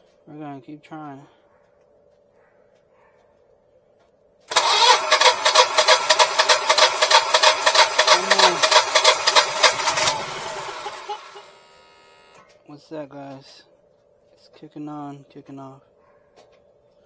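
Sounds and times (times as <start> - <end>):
generator engine running: 4.5 - 12.4.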